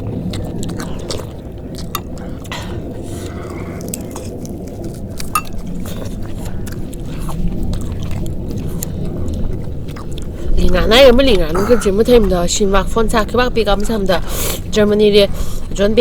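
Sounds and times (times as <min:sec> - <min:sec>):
person chewing food: 0:00.0 - 0:15.8
steady low rumble: 0:00.0 - 0:16.0.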